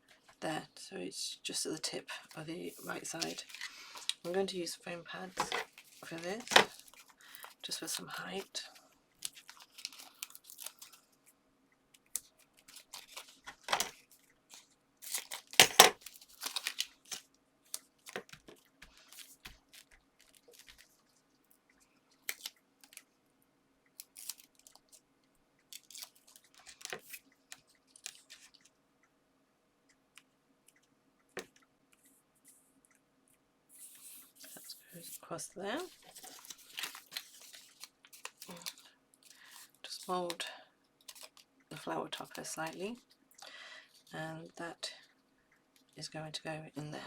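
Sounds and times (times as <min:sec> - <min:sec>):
faint steady hum: 0:00.0 - 0:47.0
backing paper peeling crackle: 0:09.2 - 0:11.0, 0:12.0 - 0:21.1, 0:25.7 - 0:28.6, 0:35.8 - 0:40.0
paper rustling and tapping: 0:12.6 - 0:14.0, 0:15.2 - 0:20.9, 0:35.9 - 0:38.8.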